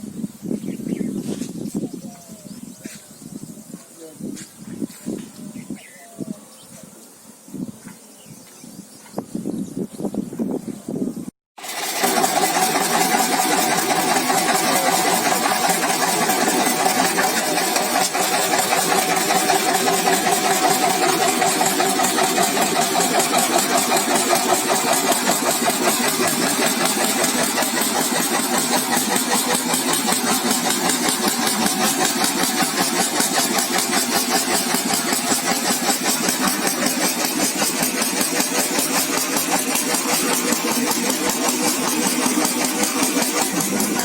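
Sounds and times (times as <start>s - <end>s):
concrete mixer engine running: 11.6s - 44.0s.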